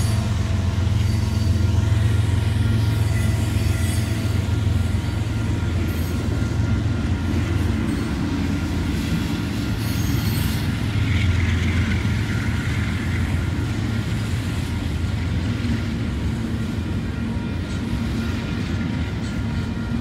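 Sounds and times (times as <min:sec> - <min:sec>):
faint high squeal: 0:00.0 - 0:06.8, 0:09.7 - 0:11.4
freight train rolling past: 0:00.0 - 0:20.0.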